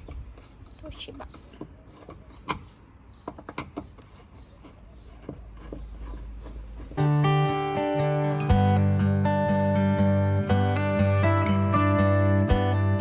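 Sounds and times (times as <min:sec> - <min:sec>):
acoustic guitar music: 0:06.8 - 0:13.0.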